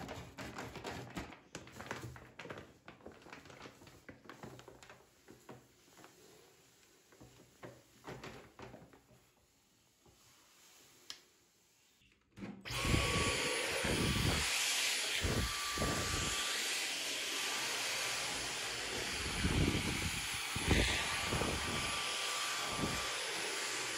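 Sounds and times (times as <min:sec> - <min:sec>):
vacuum cleaner running: 0:12.7 - 0:23.9.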